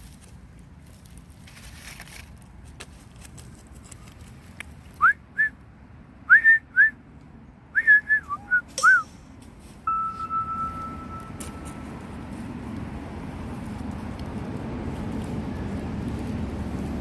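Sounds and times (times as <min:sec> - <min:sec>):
short whistled notes: 0:07.8 - 0:09.2.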